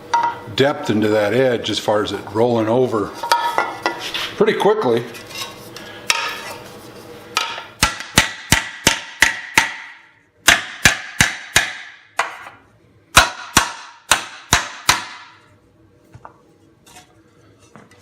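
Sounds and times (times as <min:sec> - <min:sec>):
mallet striking sheet metal: 0:07.4 - 0:12.5, 0:13.1 - 0:15.4.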